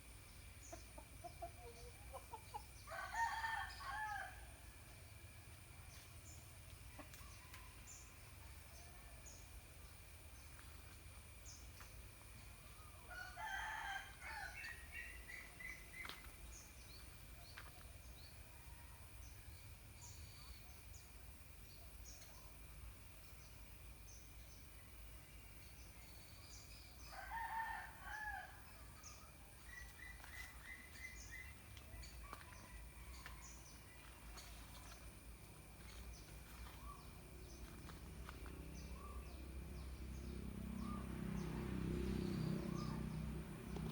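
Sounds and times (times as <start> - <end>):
rooster crowing: 2.9 - 4.6, 13.1 - 14.8, 27.1 - 28.7.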